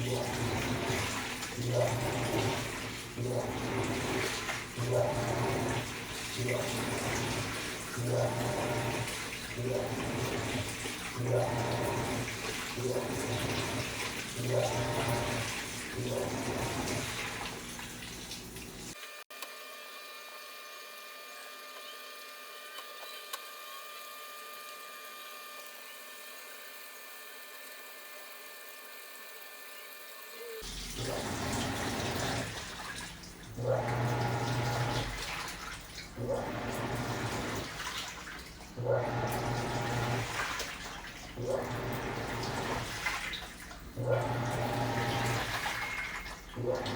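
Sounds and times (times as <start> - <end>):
washing machine motor humming: 0.0 - 19.0, 19.6 - 46.9
water sloshing through clothes: 0.0 - 19.0, 30.6 - 46.9.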